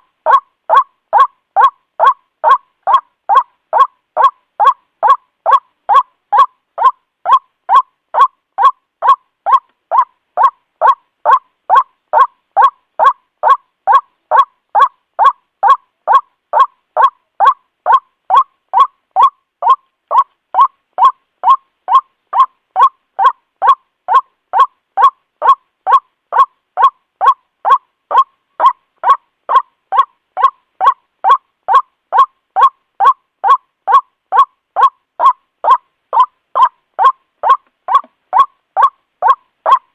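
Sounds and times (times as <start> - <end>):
waterhen calling: 0.0 - 39.9.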